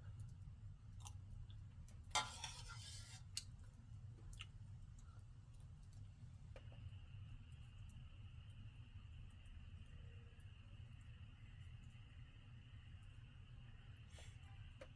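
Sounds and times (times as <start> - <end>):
faint low hum: 3.2 - 14.9.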